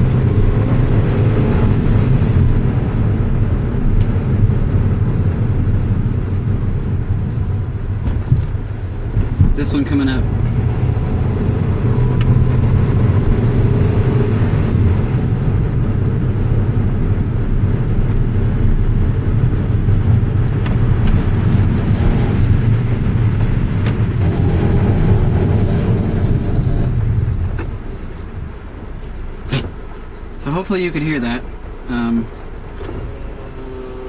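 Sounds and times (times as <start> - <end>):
car road and engine noise: 0.0 - 34.0.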